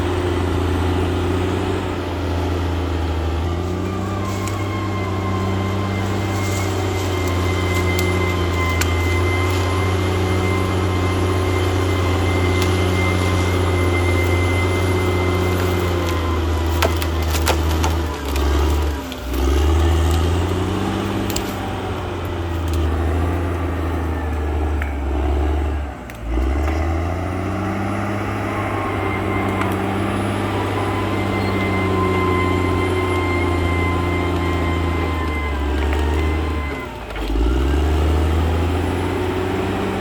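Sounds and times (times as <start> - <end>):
bulldozer diesel engine: 0.0 - 40.0
sharp cracks: 14.2 - 20.3.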